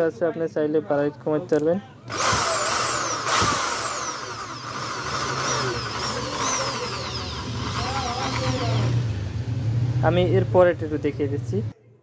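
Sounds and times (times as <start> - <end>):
electric drill motor whine: 2.1 - 9.1.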